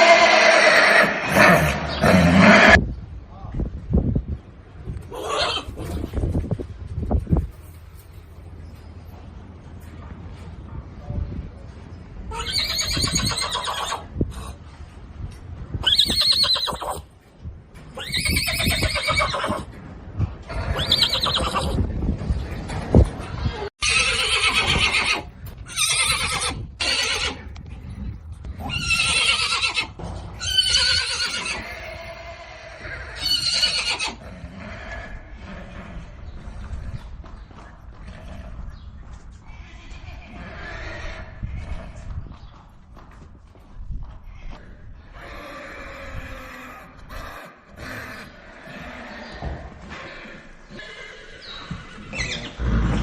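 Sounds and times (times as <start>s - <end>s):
horses whinnying: 0.0s - 2.8s, 5.1s - 6.2s, 12.3s - 14.5s, 15.8s - 17.1s, 17.9s - 19.8s, 20.5s - 21.9s, 23.5s - 27.5s, 28.6s - 37.0s, 39.5s - 42.1s, 44.4s - 53.0s.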